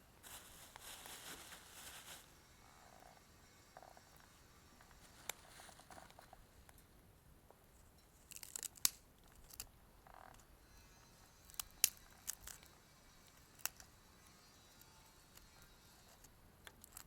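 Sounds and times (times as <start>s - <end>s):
wood fire crackling: 0.1s - 2.4s.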